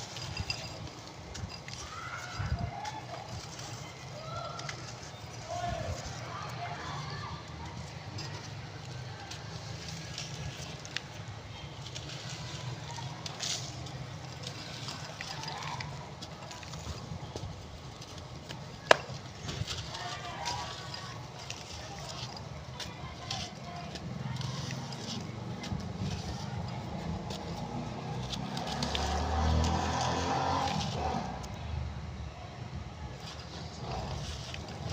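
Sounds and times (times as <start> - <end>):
brick dust crumbling by hand: 13.2 - 26.1
dirt blocks crumbling: 18.1 - 22.1.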